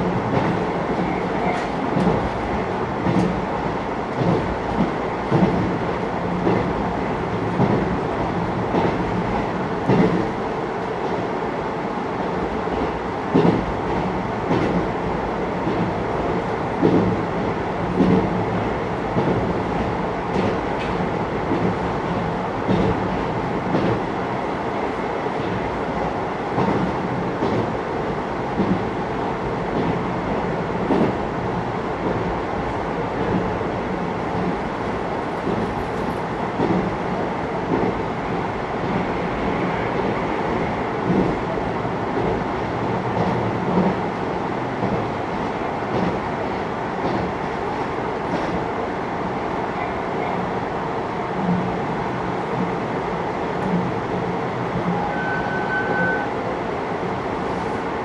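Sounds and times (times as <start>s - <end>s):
train running rumble: 0.0s - 58.0s.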